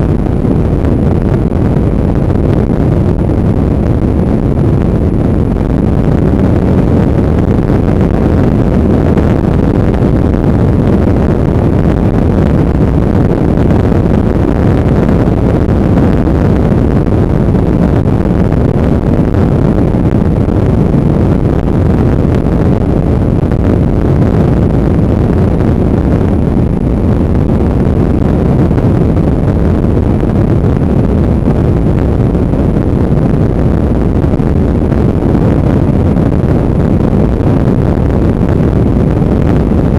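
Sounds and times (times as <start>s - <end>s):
wind noise on microphone: 0.0s - 39.9s.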